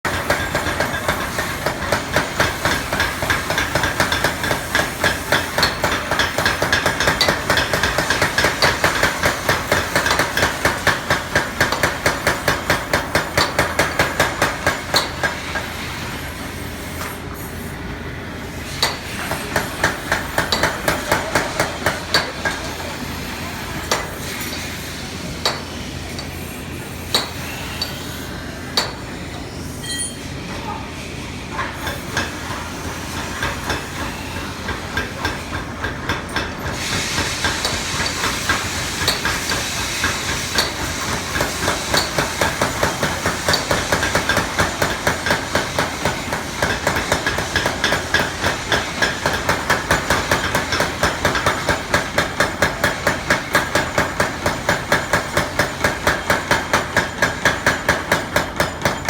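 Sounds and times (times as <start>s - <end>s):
hammer striking steel on anvil: 0.1s - 15.7s, 18.7s - 22.9s, 23.8s - 24.7s, 25.4s - 26.4s, 27.0s - 28.2s, 28.8s - 29.0s, 29.8s - 30.3s, 31.8s - 59.0s.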